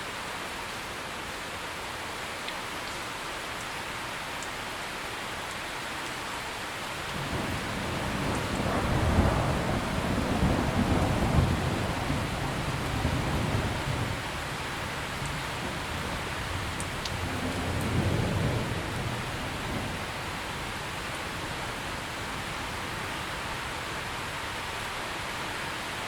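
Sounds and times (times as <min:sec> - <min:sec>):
steady rain falling: 0:00.0 - 0:26.0
thunder rumbling: 0:07.1 - 0:23.6.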